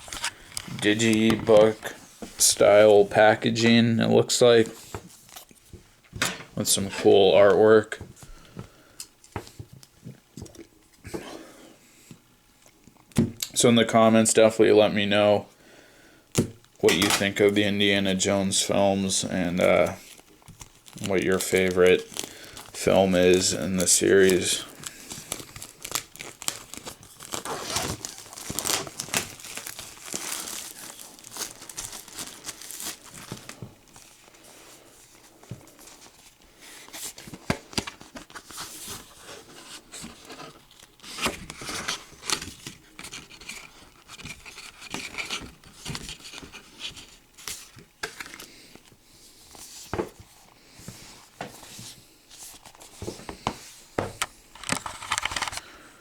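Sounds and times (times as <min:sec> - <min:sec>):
plastic wrapping crinkling: 0:00.0 - 0:03.2, 0:19.1 - 0:49.0.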